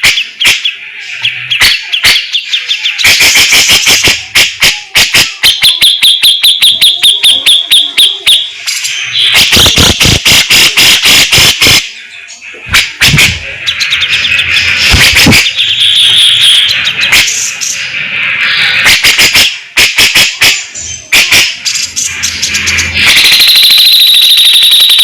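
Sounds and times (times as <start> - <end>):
bulbul singing harsh rattling notes: 12.6 - 24.8.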